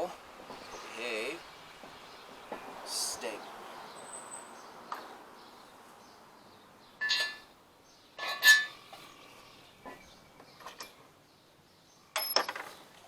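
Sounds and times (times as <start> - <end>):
metal crane parts clanking: 7.0 - 7.5, 8.2 - 9.1, 9.8 - 11.0, 12.1 - 12.8.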